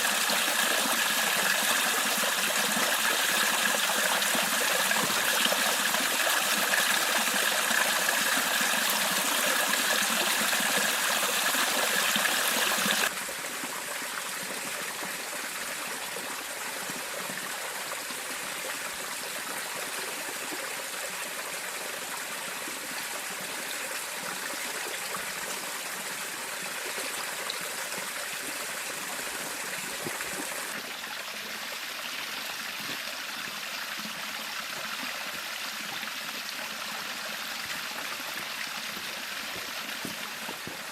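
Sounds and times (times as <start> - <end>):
river flowing: 0.0 - 14.1.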